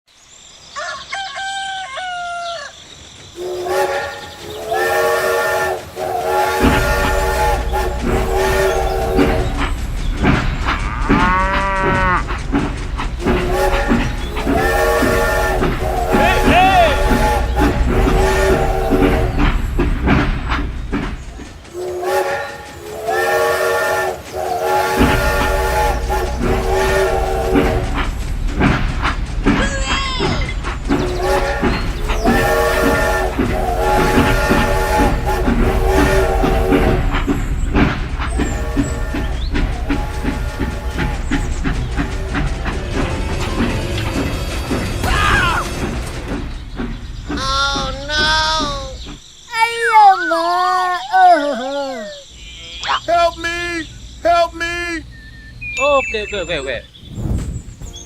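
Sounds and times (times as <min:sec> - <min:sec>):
train rumbling: 0:00.1 - 0:58.0
rooster crowing: 0:00.7 - 0:02.8
multi-tone train horn: 0:03.4 - 0:12.3, 0:13.2 - 0:19.6, 0:21.7 - 0:28.2, 0:31.0 - 0:44.2.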